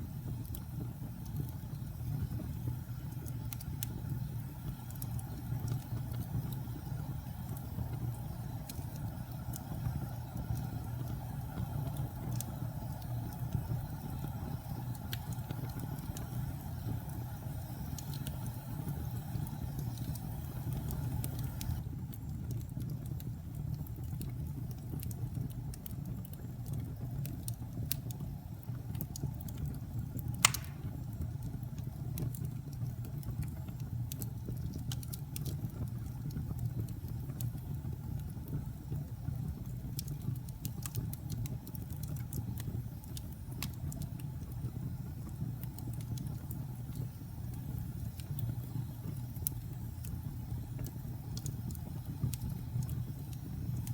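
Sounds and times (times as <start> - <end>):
wood fire crackling: 0.0 - 53.9
sharp pop of fire: 30.4 - 31.1.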